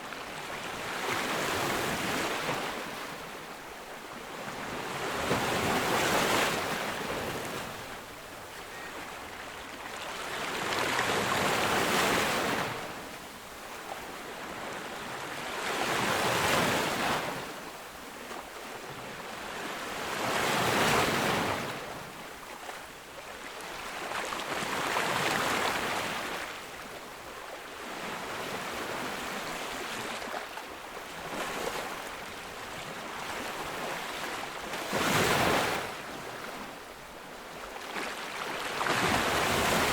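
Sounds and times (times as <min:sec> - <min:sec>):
ocean waves breaking: 0:31.1 - 0:36.8, 0:37.7 - 0:39.9.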